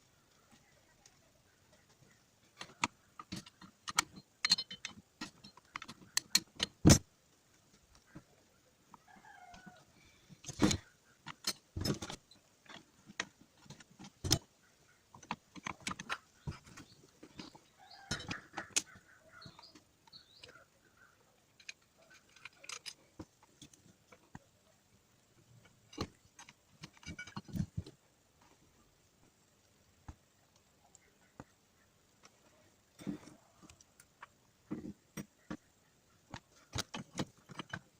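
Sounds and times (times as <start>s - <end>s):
metal tools clinking: 2.6s - 6.8s, 21.6s - 23.2s, 26.8s - 27.7s.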